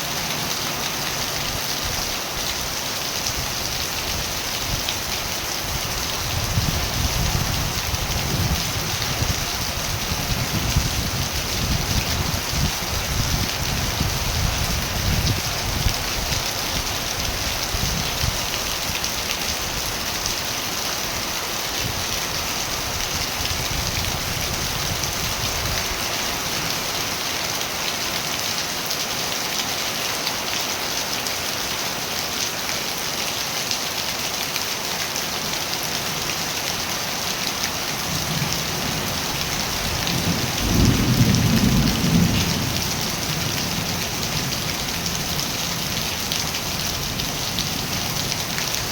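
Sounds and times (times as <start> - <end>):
heavy rain falling: 0.0 - 48.9
low rumble of thunder: 6.2 - 18.5, 38.2 - 46.0.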